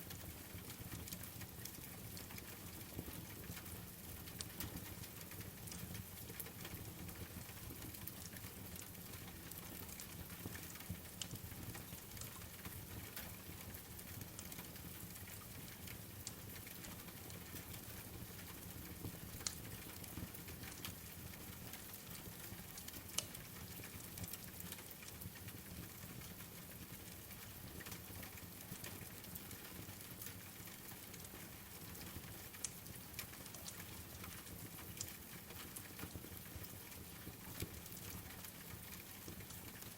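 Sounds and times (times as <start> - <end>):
steady rain: 0.0 - 39.9
wood fire crackling: 31.9 - 36.3.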